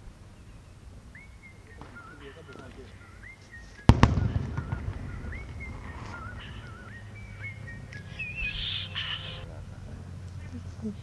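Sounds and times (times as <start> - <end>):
fireworks crackling rumble: 0.0 - 11.0
fireworks bangs: 1.7 - 2.9, 3.8 - 9.4.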